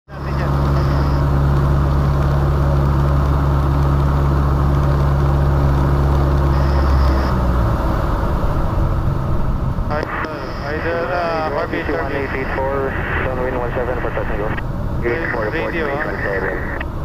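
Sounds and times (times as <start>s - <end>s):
propeller plane engine droning: 0.1s - 17.0s.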